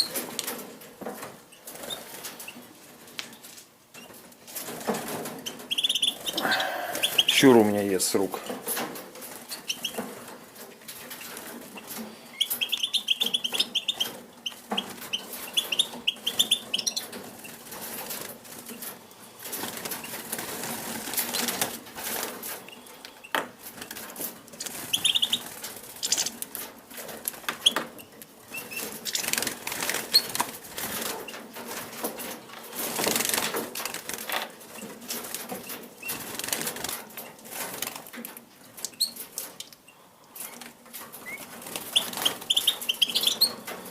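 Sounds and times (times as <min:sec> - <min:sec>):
birds fluttering wings: 0:00.0 - 0:22.9, 0:23.6 - 0:38.4, 0:40.4 - 0:43.9
short high bird calls: 0:05.9 - 0:07.4.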